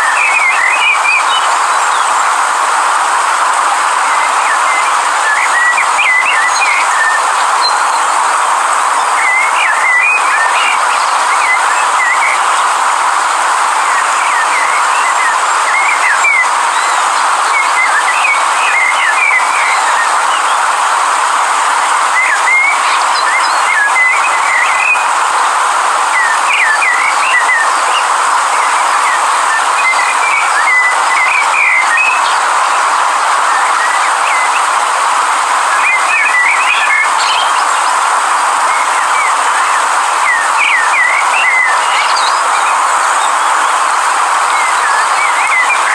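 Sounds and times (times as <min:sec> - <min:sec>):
river water flowing: 0:00.0 - 0:45.9
small birds chirping: 0:35.8 - 0:38.2.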